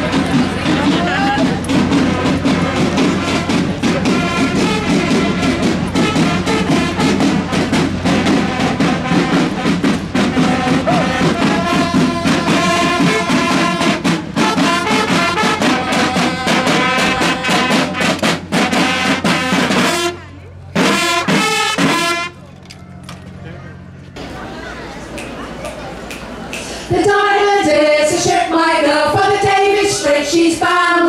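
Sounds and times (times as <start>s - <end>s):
brass instruments playing: 0.0s - 22.4s.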